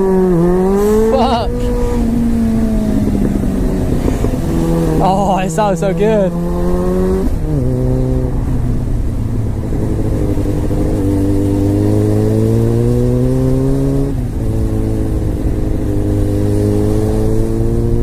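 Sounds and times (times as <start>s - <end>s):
wind noise: 0.0s - 18.0s.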